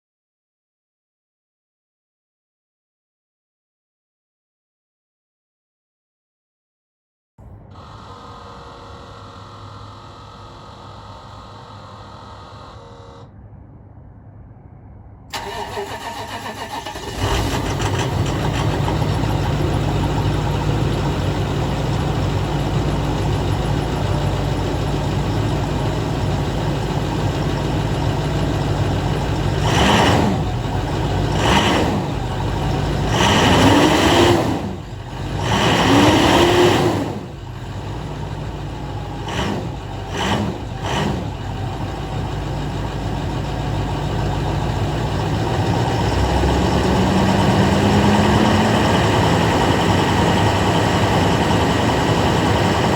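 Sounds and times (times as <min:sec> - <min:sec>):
diesel engine idling and revving: 0:15.3 - 0:52.9.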